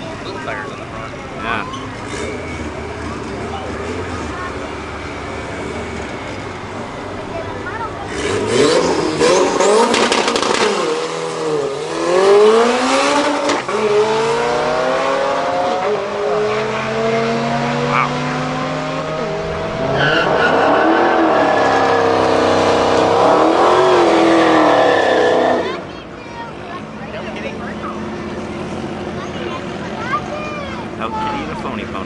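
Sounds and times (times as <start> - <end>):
tires squealing: 1.3 - 26.0
car engine revving hard: 2.0 - 6.7, 7.9 - 25.9.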